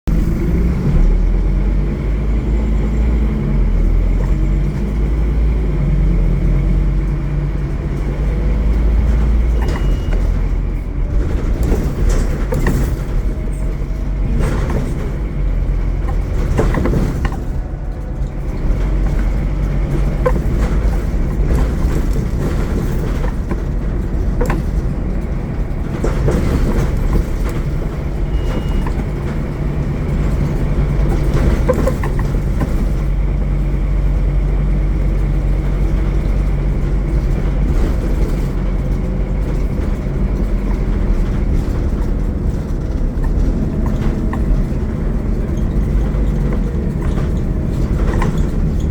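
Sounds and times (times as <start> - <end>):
bus body rattling and knocking: 0.0 - 48.9
bus diesel engine running: 0.0 - 48.9.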